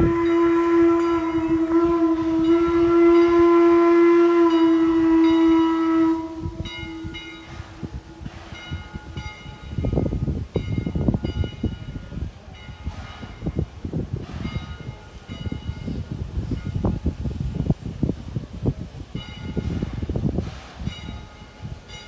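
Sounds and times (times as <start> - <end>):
train horn blast: 0.0 - 9.2
train wheels rumbling and clattering: 0.0 - 22.0
train bell ringing: 2.4 - 3.6, 4.3 - 13.7, 14.4 - 17.1, 19.2 - 20.1, 20.8 - 22.0.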